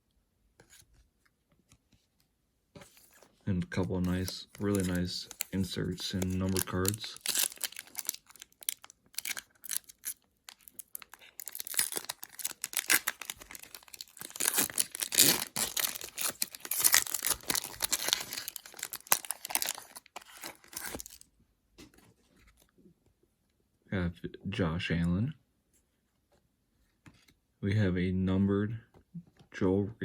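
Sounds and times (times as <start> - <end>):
wrapper being torn and crinkled: 3.9 - 21.2.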